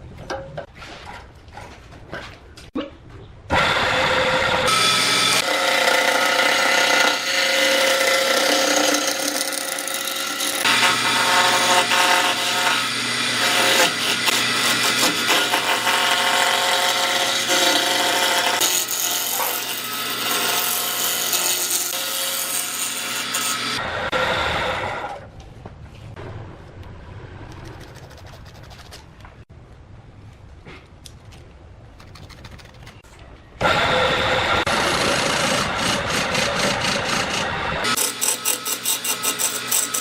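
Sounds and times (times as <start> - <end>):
power tool cutting wood: 3.5 - 25.2, 33.6 - 40.0.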